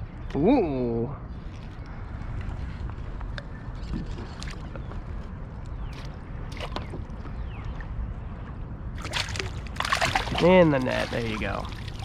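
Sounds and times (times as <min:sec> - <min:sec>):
wind rumble on microphone: 0:00.0 - 0:12.0
water against kayak: 0:01.5 - 0:12.0
small splashes: 0:09.0 - 0:12.0.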